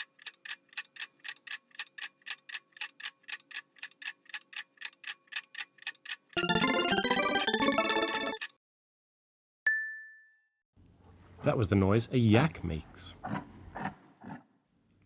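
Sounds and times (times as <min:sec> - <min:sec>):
clock ticking: 0:00.0 - 0:08.5
bright chiming notes: 0:06.4 - 0:08.4.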